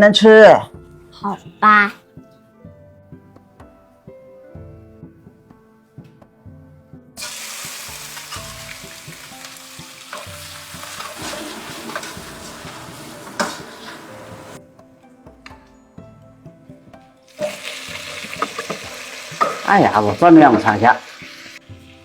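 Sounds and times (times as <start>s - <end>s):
soft background music: 0.0s - 22.0s
food sizzling in hot oil: 7.2s - 14.6s, 17.3s - 22.0s
utensil stirring in pan: 7.2s - 14.6s, 17.3s - 22.0s
utensil knocking on pan: 10.1s - 14.5s, 17.4s - 20.9s.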